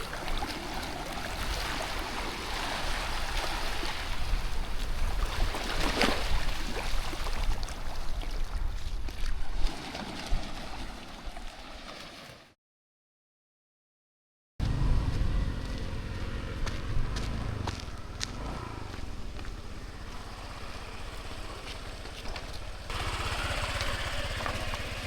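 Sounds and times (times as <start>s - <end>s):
waves washing onto beach: 0.0s - 12.6s, 17.3s - 25.0s
gusty low rumble: 14.6s - 22.0s.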